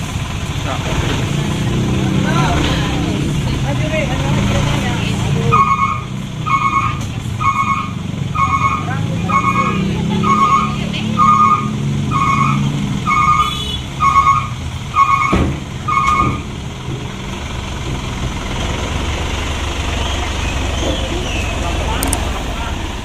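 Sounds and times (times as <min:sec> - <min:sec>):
diesel engine running: 0:00.0 - 0:23.0
reversing alarm beeping: 0:05.5 - 0:16.5.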